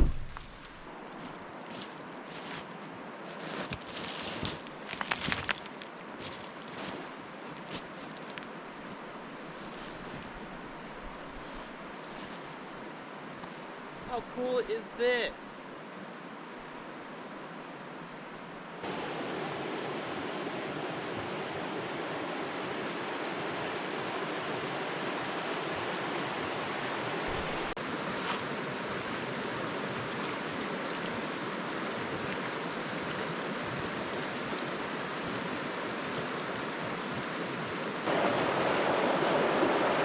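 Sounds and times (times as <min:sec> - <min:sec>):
river rushing: 0:08.0 - 0:40.0.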